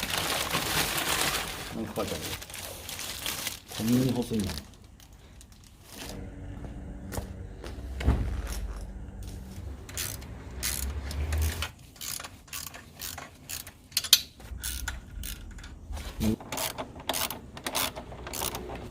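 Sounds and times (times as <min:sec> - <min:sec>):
low hum: 0:05.9 - 0:11.7
ratchet clicking: 0:09.9 - 0:15.8, 0:16.5 - 0:18.7.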